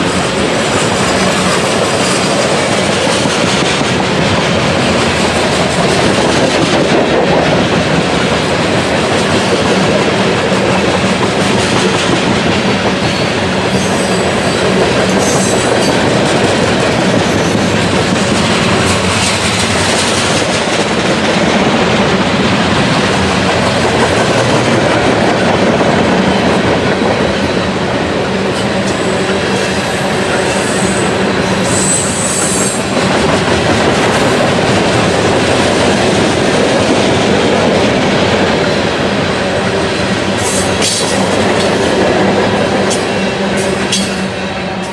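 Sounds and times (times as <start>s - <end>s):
railroad cars rumbling and clattering: 0.0s - 44.9s.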